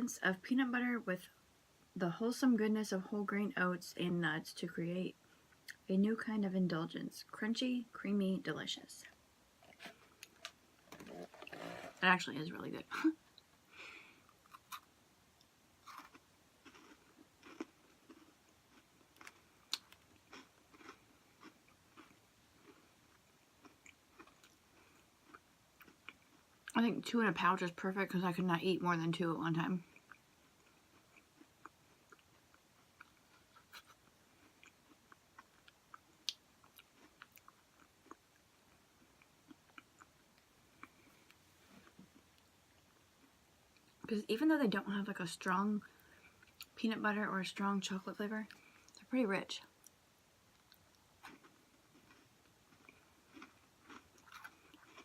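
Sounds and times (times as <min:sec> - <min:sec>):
person chewing crunchy food: 0:15.8 - 0:26.7, 0:29.9 - 0:43.0, 0:50.5 - 0:55.0.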